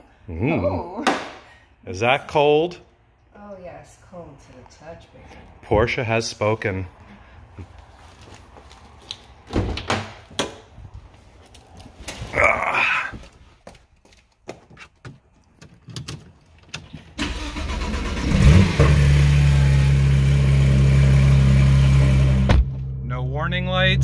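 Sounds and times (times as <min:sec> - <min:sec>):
car engine starting and idling: 0:17.0 - 0:24.0.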